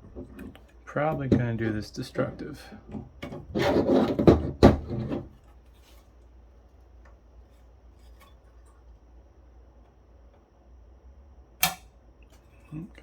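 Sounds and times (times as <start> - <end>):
tool scraping plastic pin: 3.2 - 5.3
sharp plastic snap: 11.6 - 11.9.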